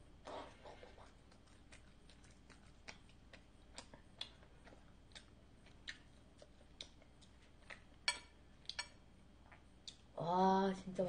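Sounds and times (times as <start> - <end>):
wet mouth clicks chewing: 0.3 - 7.8.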